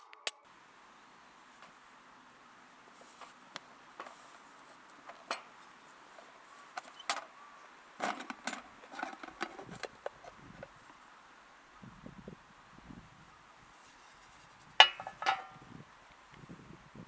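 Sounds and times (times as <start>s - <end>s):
small hard objects clattering: 8.0s - 10.4s.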